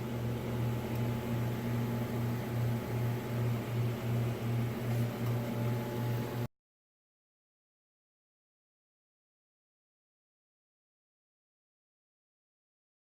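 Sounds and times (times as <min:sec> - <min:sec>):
motor hum with faint pulsing: 0:00.0 - 0:06.5.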